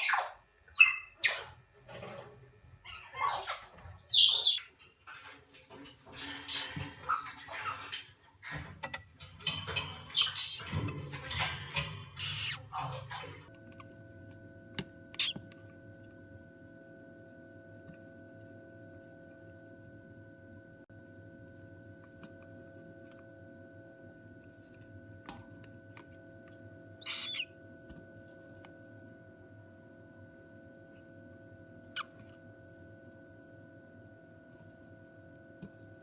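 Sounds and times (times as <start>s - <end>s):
cockatoo chicks squawking: 2.9s - 4.7s, 12.2s - 12.9s, 15.2s - 15.4s, 27.0s - 27.5s
hum of held tones: 7.8s - 36.0s.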